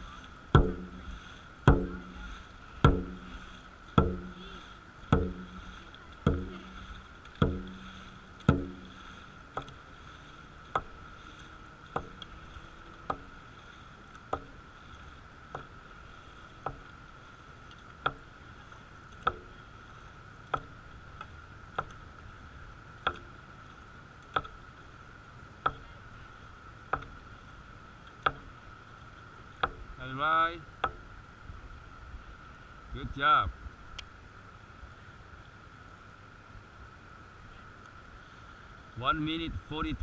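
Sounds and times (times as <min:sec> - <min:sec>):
paddles knocking on boat: 0:00.0 - 0:17.3, 0:17.9 - 0:19.6, 0:20.5 - 0:22.0, 0:25.6 - 0:26.0, 0:26.8 - 0:27.4, 0:28.1 - 0:28.6, 0:29.5 - 0:31.2
steady high hum: 0:00.0 - 0:40.0.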